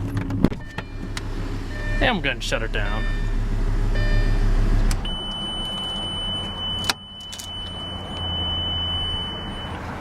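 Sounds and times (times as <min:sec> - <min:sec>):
car engine running: 0:00.0 - 0:10.0
high electronic warning tone: 0:05.0 - 0:09.8.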